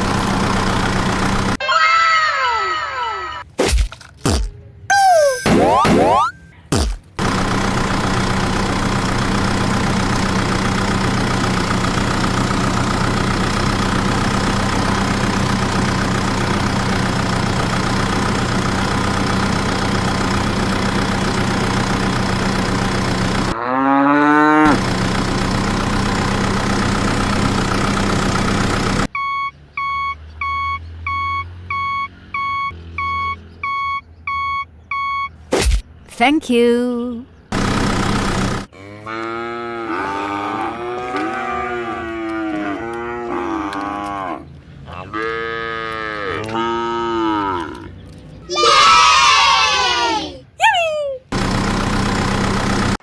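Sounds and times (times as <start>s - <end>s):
truck engine running: 0.0s - 1.6s, 5.7s - 50.6s, 51.3s - 53.0s
regular beeping: 4.2s - 23.5s, 24.9s - 35.5s
cow mooing: 23.5s - 24.8s, 38.7s - 47.9s.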